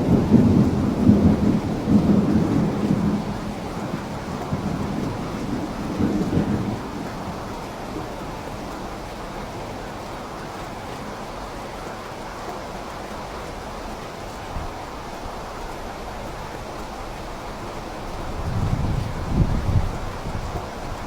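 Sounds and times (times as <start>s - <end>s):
thunder rumbling: 0.0s - 9.1s, 17.4s - 21.0s
rain falling: 0.0s - 21.0s.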